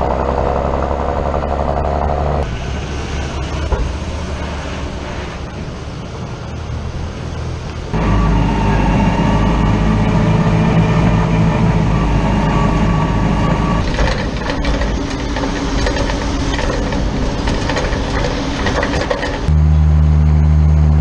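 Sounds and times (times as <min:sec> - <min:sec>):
farm machinery engine running: 0:00.0 - 0:21.0
rattling clatter of knocks: 0:13.8 - 0:19.5.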